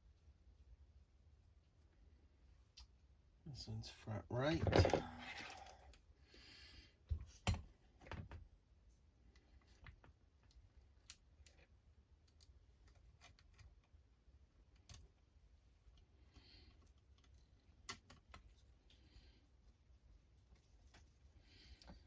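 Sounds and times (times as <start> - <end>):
small plastic parts clicking and tapping: 9.4 - 14.0, 14.6 - 15.2, 16.7 - 18.6.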